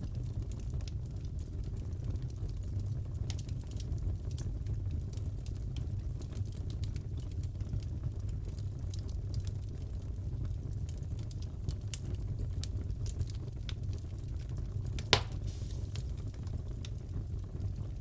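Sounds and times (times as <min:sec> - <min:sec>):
loud crack of fire: 0:00.0 - 0:18.0
fireplace crackling: 0:13.6 - 0:18.0.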